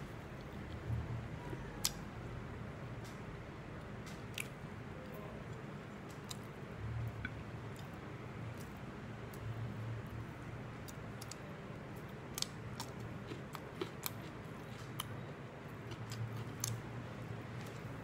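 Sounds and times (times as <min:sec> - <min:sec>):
low steady hum: 0:00.0 - 0:18.0
cucumber crunching: 0:12.3 - 0:15.1.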